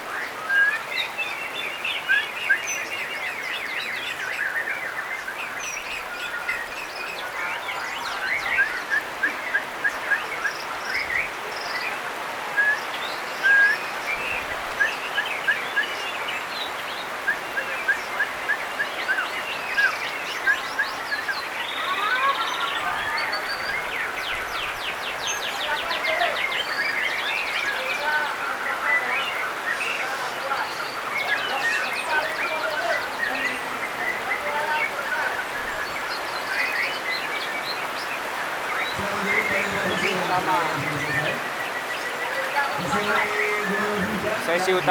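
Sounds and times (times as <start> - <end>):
birds whistling: 12.7 - 38.0, 38.7 - 44.9
steady background hiss: 13.2 - 44.9.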